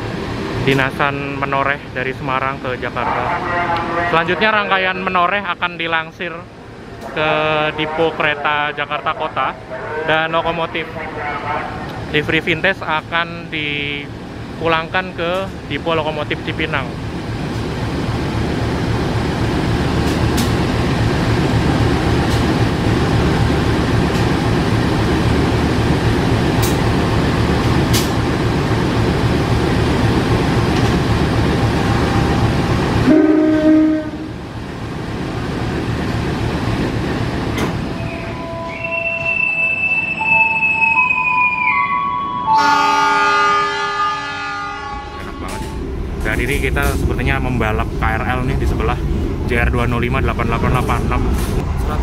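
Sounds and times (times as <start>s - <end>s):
train heavy rumble: 0.0s - 39.0s, 42.6s - 52.0s
train horn: 31.8s - 34.4s, 38.0s - 39.3s, 42.1s - 45.8s.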